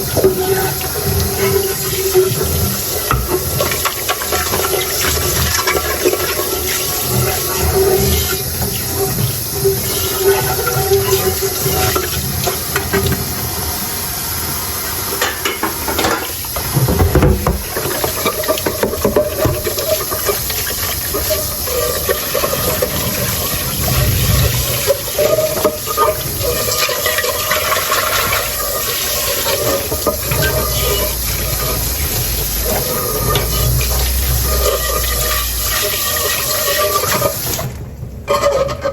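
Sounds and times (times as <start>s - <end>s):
tap water running into sink: 0.0s - 37.8s
dishes clinking: 15.2s - 20.4s.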